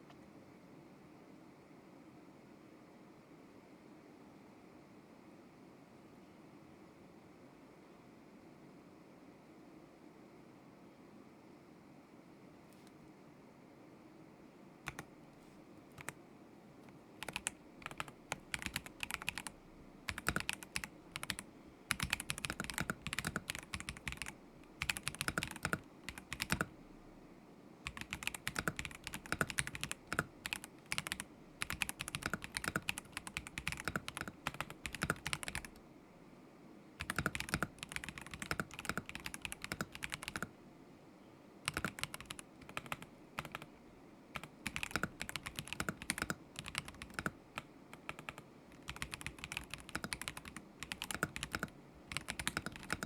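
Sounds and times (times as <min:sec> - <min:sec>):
mechanical keyboard typing: 0:14.9 - 0:15.1, 0:15.9 - 0:16.2, 0:17.2 - 0:26.8, 0:27.8 - 0:35.8, 0:37.0 - 0:40.6, 0:41.7 - 0:43.7, 0:44.4 - 0:53.0.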